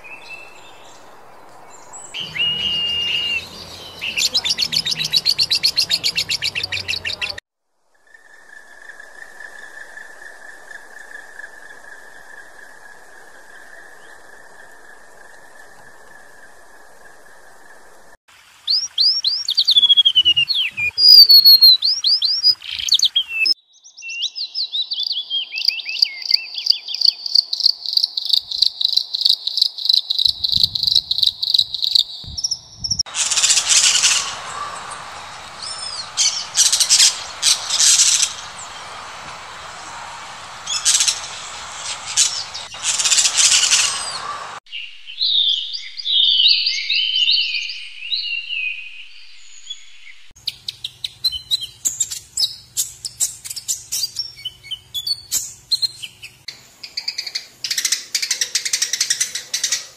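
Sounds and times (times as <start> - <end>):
songbirds singing and calling: 0.0 - 7.4, 18.7 - 59.9
steady hiss: 30.3 - 44.6.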